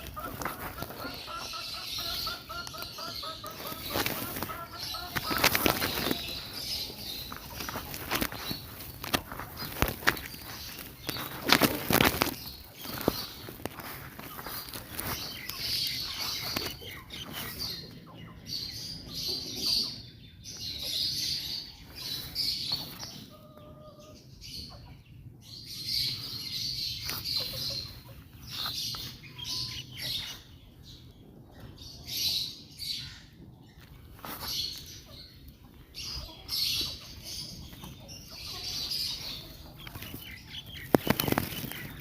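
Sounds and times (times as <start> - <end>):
rustling: 0.0 - 2.8, 3.4 - 17.7
bird chick raspy calls: 0.0 - 20.1.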